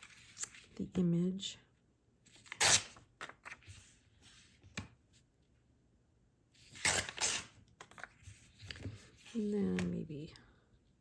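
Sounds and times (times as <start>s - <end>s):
paper tearing: 2.4s - 3.6s, 6.6s - 8.1s
paper rustling: 2.4s - 5.0s, 6.6s - 9.9s.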